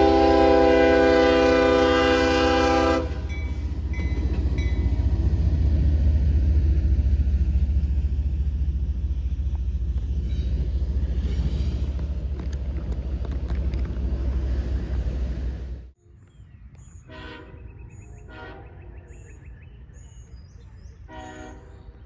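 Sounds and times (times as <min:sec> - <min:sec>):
locomotive air horn chord: 0:00.0 - 0:03.5, 0:17.1 - 0:18.8, 0:21.1 - 0:22.0
train rumbling past: 0:00.0 - 0:20.0.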